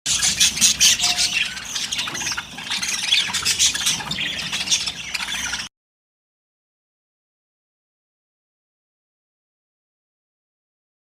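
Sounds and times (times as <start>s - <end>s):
budgerigars squawking and chirping: 0.1s - 5.7s.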